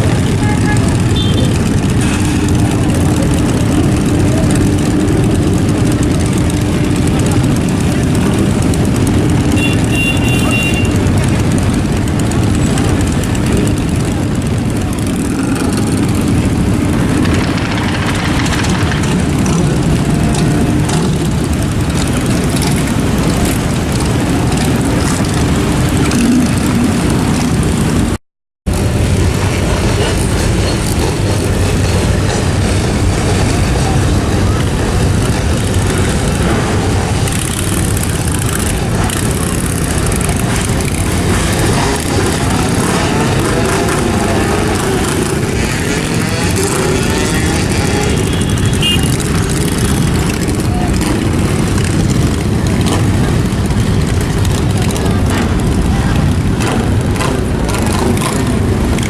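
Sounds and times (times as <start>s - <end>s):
vehicle engines running: 0.0s - 59.0s.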